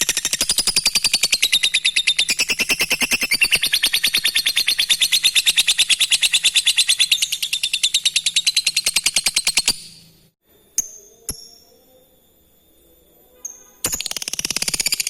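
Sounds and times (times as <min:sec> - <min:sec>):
lovebird chattering trill: 0:00.0 - 0:10.2, 0:13.5 - 0:15.0.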